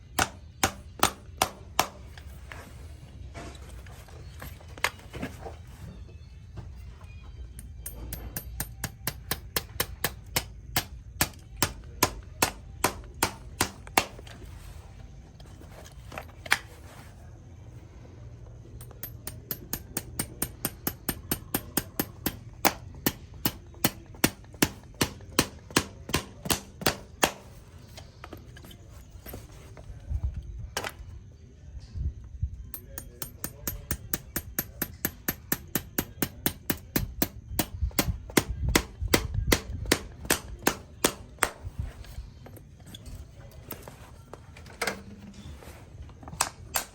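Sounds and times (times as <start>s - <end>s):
hammer tapping: 0.1s - 2.1s, 7.6s - 14.3s, 18.8s - 27.6s, 32.7s - 41.6s.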